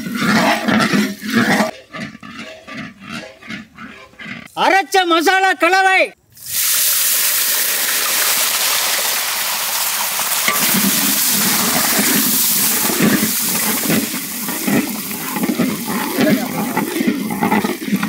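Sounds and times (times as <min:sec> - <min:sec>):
wooden paddle stirring and scraping: 0:00.0 - 0:04.7, 0:10.5 - 0:18.0
paste sizzling in butter: 0:06.4 - 0:18.0.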